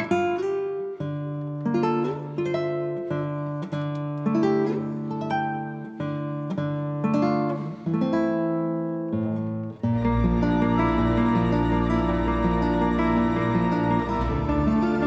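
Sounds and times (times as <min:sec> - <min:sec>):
plucked acoustic guitar chords: 0:00.0 - 0:15.0
sustained backing and bass: 0:10.0 - 0:15.0.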